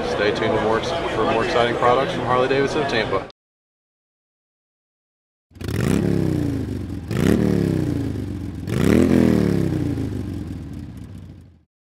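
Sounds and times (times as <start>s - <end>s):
motorcycle engine revving: 5.5s - 11.7s.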